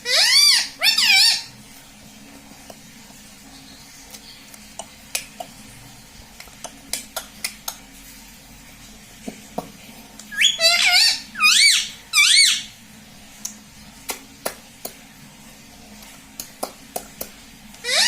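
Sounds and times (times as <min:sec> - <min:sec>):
parrot call: 0:00.0 - 0:01.5, 0:10.3 - 0:12.7.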